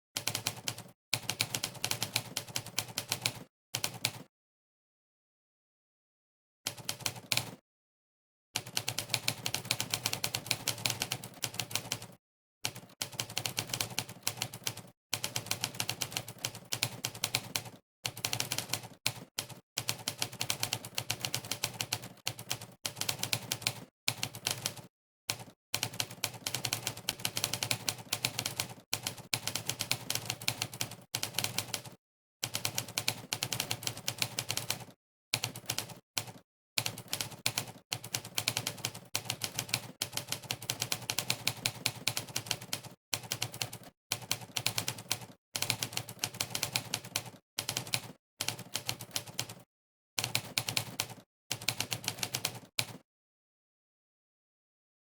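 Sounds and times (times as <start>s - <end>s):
typewriter keystroke clacks: 12.7s - 49.6s, 50.2s - 53.0s.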